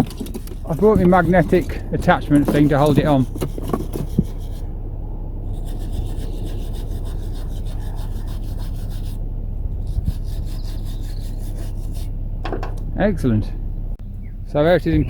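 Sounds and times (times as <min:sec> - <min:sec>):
rasping scrape on metal: 0:00.0 - 0:04.7, 0:05.4 - 0:09.2, 0:09.8 - 0:12.1
diesel engine humming: 0:00.0 - 0:15.0.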